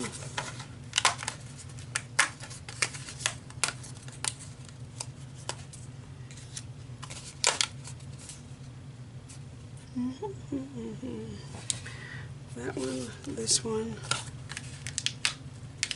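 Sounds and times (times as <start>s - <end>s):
paper rustling: 0.0s - 8.6s, 12.8s - 13.4s, 14.0s - 15.9s.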